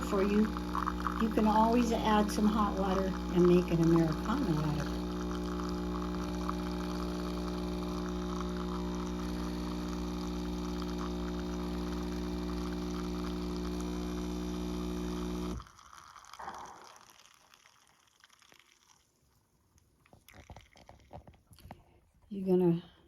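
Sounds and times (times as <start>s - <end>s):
capsule machine pump humming: 0.0s - 15.7s
water flowing into cup: 0.0s - 19.4s, 20.1s - 21.7s.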